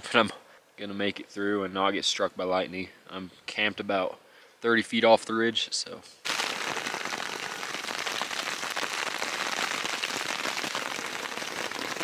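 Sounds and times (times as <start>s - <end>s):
heavy rain on a tent: 6.3s - 12.0s.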